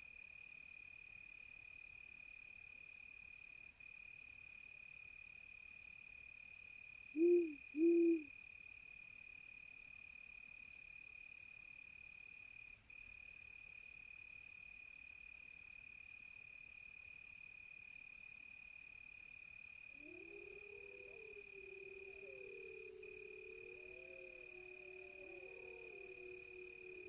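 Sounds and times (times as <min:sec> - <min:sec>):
faint insect hiss: 0:07.1 - 0:08.3, 0:19.6 - 0:27.0
crickets trilling: 0:07.2 - 0:08.3, 0:19.9 - 0:27.0
distant wolves howling: 0:07.2 - 0:08.3, 0:19.9 - 0:27.0.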